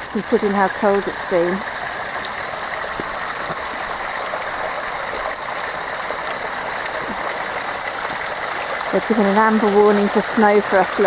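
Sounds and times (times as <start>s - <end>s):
water pouring down rock: 0.0s - 11.0s.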